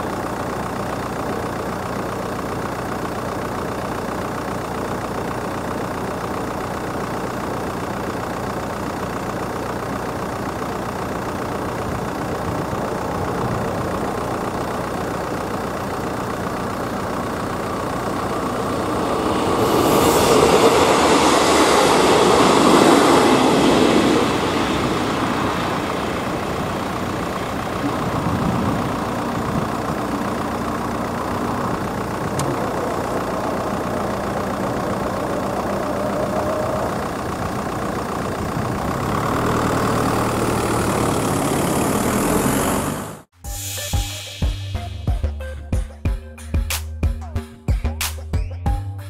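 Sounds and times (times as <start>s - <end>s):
train passing level crossing: 17.2s - 38.0s.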